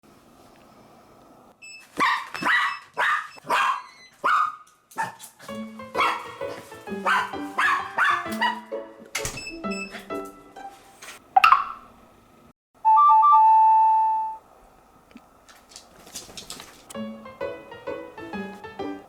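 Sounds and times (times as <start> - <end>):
small dog barking: 2.0 - 5.2, 6.0 - 8.6
background music: 5.5 - 11.2, 17.0 - 19.0.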